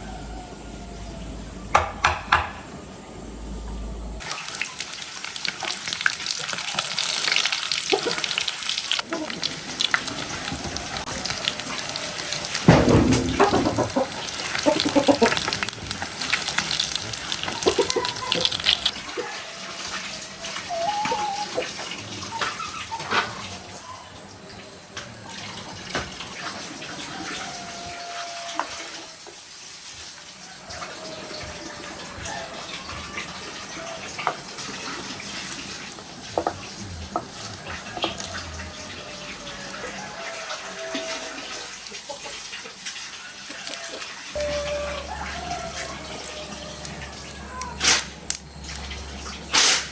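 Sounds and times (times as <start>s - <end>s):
water running and splashing: 4.2s - 49.9s
clinks and knocks: 12.6s - 15.3s.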